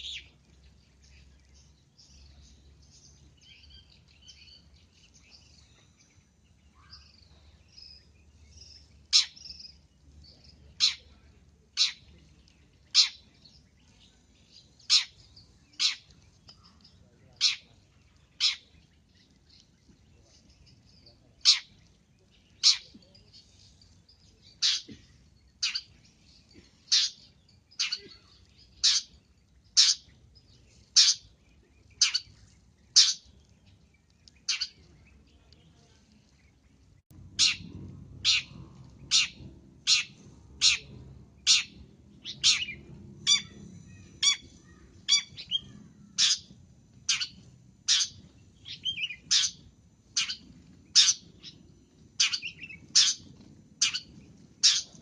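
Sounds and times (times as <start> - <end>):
low background rumble: 0.0 - 55.0
shrike calling: 41.5 - 46.5.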